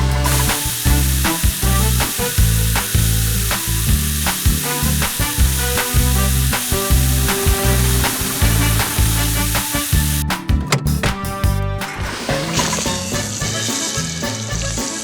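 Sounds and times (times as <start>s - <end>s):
background music with bass beat: 0.0s - 15.0s
loud spraying hiss: 0.2s - 10.2s.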